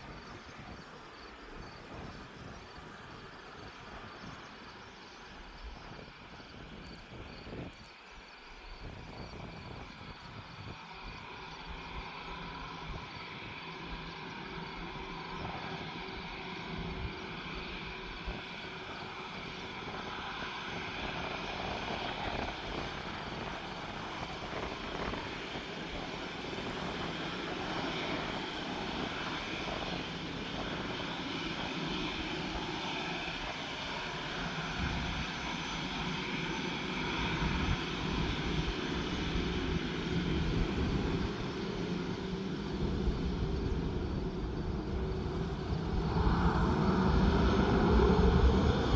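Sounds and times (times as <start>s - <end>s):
aircraft engines running: 0.0s - 48.9s
wind rumbling on microphone: 0.0s - 48.9s.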